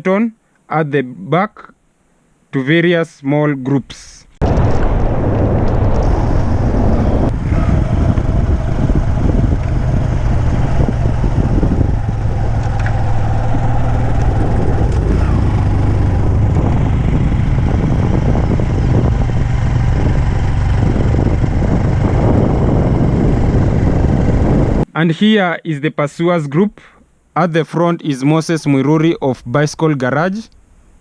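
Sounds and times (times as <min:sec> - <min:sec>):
road and wind noise: 0:04.4 - 0:24.9
vehicle engine rumble: 0:04.4 - 0:24.9.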